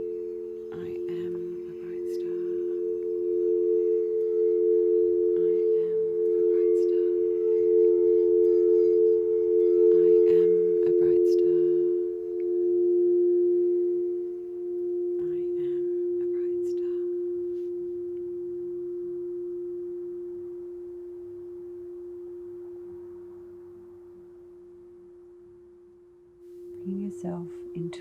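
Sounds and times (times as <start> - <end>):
metallic ringing tones: 0.0 - 28.0.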